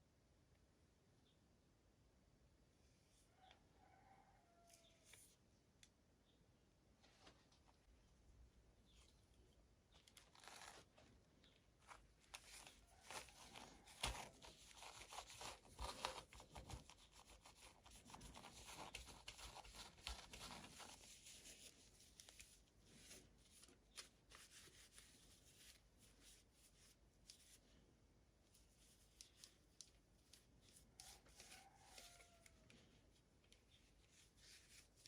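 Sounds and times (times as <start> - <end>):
toy packaging rustling and tearing: 9.9 - 11.2, 11.8 - 26.4.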